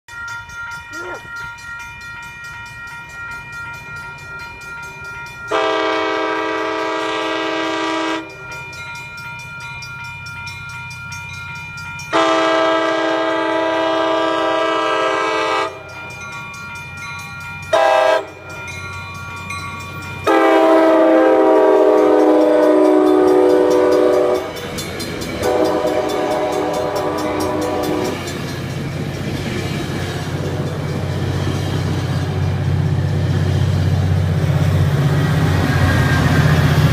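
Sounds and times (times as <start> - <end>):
low rumble of passing train: 0.1 - 36.9
locomotive air horn blasts: 5.5 - 8.4, 12.1 - 15.8, 17.8 - 18.4, 20.3 - 24.5, 25.4 - 28.2.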